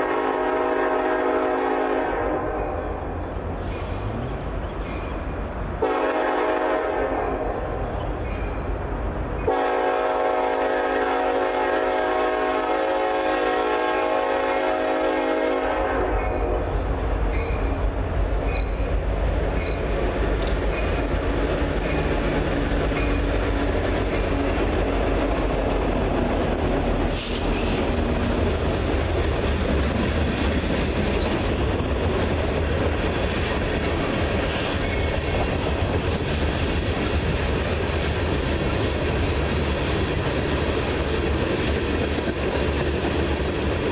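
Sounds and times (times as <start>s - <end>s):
train air horn: 0.0s - 3.1s, 5.8s - 7.9s, 9.4s - 16.8s, 27.0s - 28.1s
train wheels clattering on rails: 1.6s - 6.7s, 7.4s - 43.9s.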